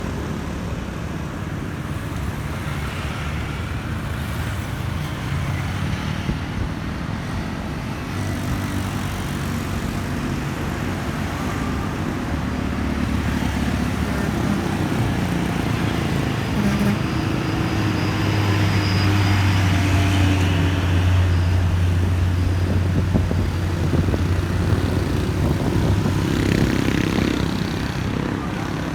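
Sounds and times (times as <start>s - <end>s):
road traffic noise: 0.0s - 28.9s
truck engine droning: 11.3s - 28.9s.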